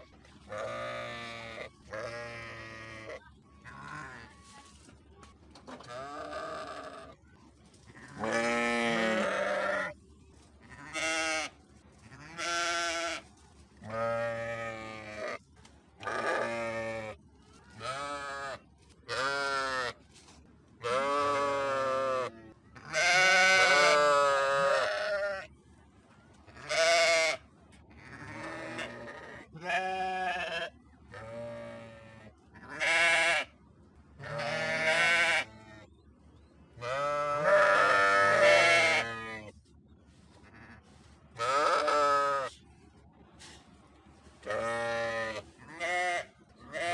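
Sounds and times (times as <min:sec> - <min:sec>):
sheep bleating: 0:00.5 - 0:04.3, 0:05.8 - 0:07.2, 0:08.1 - 0:10.0, 0:17.8 - 0:20.0, 0:20.8 - 0:25.5, 0:26.6 - 0:27.4, 0:28.0 - 0:33.5, 0:34.2 - 0:35.6, 0:36.8 - 0:39.4, 0:41.4 - 0:42.5, 0:44.5 - 0:46.9.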